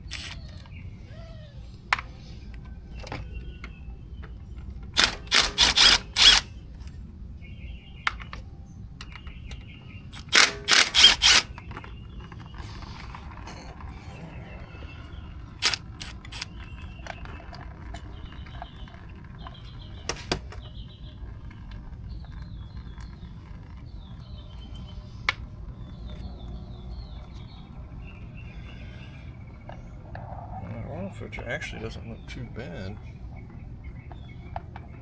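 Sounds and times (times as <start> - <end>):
metal tools and bolts clinking: 0.0 - 0.7, 4.6 - 6.9, 10.1 - 11.6.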